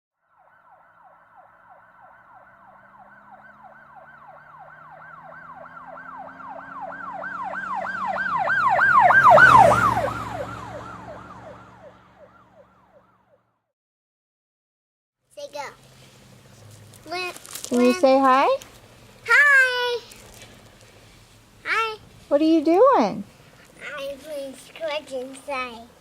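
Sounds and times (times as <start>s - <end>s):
emergency vehicle siren wailing: 0.2s - 13.4s
low vehicle hum: 0.5s - 13.1s, 15.4s - 26.0s.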